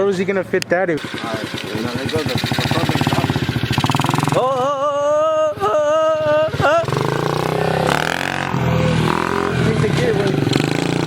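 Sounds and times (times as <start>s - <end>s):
small dirt bike engine running: 1.0s - 4.8s.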